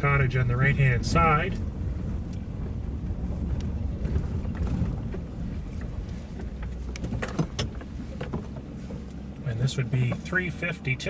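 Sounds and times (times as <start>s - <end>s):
car driving slowly: 0.0s - 11.0s
wind noise: 0.6s - 8.8s.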